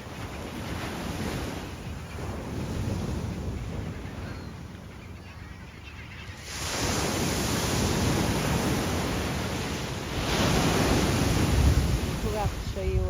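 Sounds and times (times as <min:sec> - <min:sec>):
surf breaking on beach: 0:06.4 - 0:13.0.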